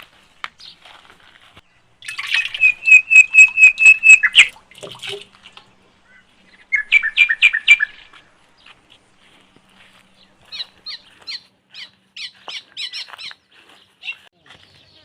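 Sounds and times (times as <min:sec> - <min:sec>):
bird calling sharp notes: 0:02.0 - 0:04.6, 0:05.9 - 0:08.3.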